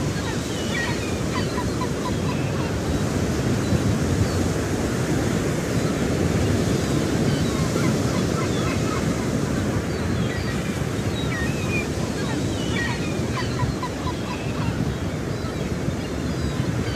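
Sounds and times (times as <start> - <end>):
wind on microphone: 0.0 - 16.9
budgerigars chirping: 0.1 - 3.1, 9.9 - 16.9.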